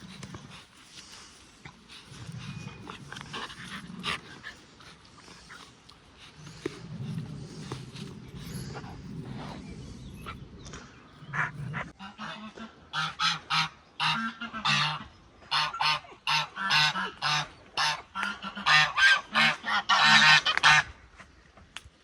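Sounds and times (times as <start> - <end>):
geese honking: 11.3 - 20.9.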